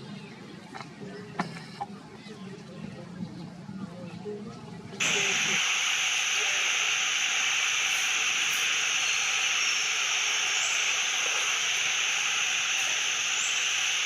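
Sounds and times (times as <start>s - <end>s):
steady high-pitched hiss: 5.0s - 14.0s.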